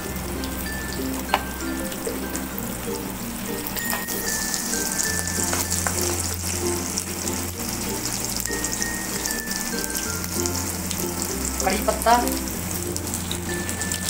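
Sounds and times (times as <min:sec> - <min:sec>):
onions sizzling in hot oil: 0:00.0 - 0:14.0
wooden spatula stirring: 0:03.8 - 0:07.8.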